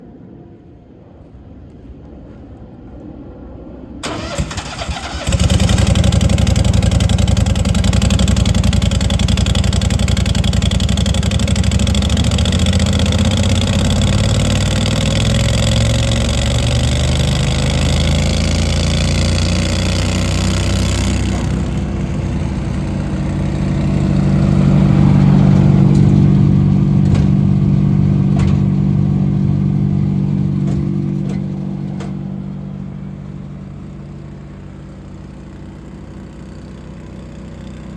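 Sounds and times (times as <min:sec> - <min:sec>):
wood chipper engine running: 0:04.0 - 0:37.9.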